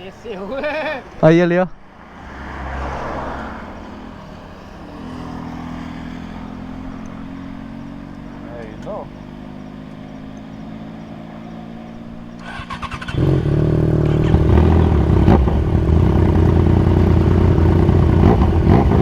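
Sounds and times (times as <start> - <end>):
motorcycle engine running: 4.8 - 19.0.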